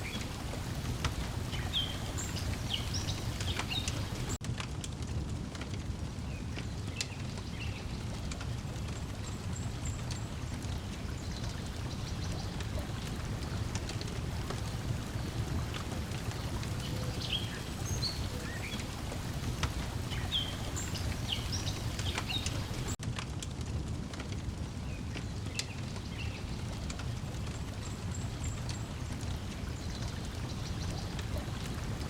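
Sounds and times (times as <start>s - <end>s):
breeze: 0.0s - 4.4s, 6.3s - 23.0s
lapping lake water: 0.0s - 4.4s, 7.4s - 23.0s, 25.5s - 32.0s
small birds chirping: 0.0s - 4.4s, 8.8s - 23.0s, 24.9s - 32.0s
wood fire crackling and popping: 0.0s - 10.8s, 21.0s - 27.6s.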